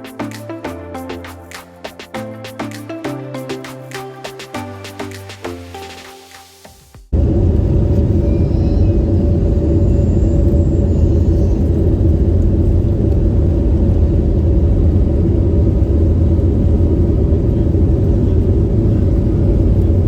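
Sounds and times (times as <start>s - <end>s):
airliner cabin rumble: 7.1s - 20.0s.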